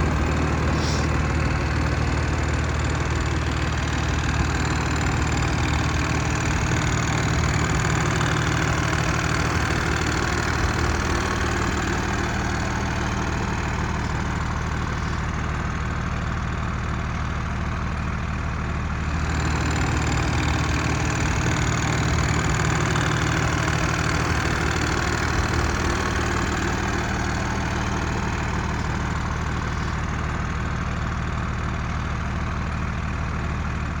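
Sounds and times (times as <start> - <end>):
diesel truck engine idling: 0.0 - 34.0.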